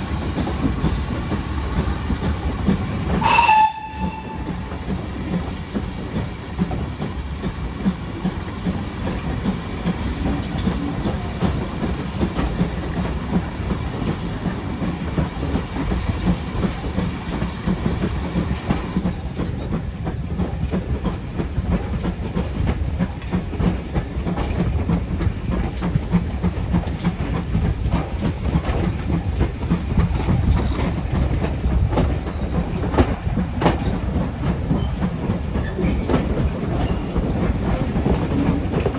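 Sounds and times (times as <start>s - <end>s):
steam hiss: 0.0s - 38.9s
train wheels rumbling on rails: 0.0s - 38.9s
wheels clicking over rail joints: 0.0s - 38.9s.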